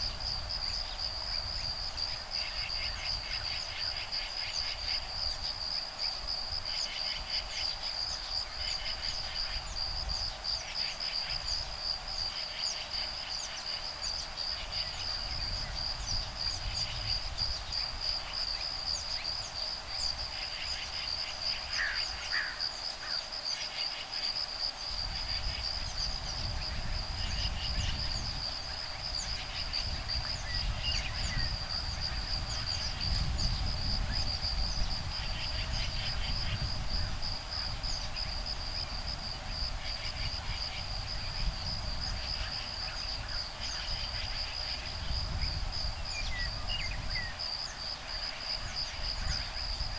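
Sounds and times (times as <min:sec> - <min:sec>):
wind rumble on microphone: 0:00.0 - 0:22.6, 0:24.2 - 0:49.9
insects trilling: 0:00.0 - 0:49.9
short pulsed insect calls: 0:00.0 - 0:49.9.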